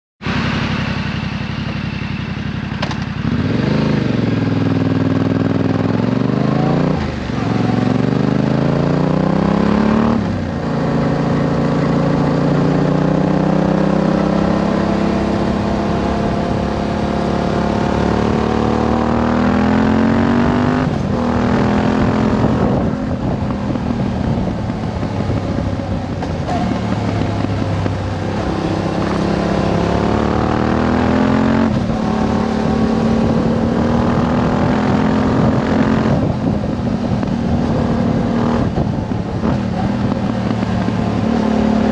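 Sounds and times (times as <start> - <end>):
motorcycle engine revving through gears: 0.2 - 41.9.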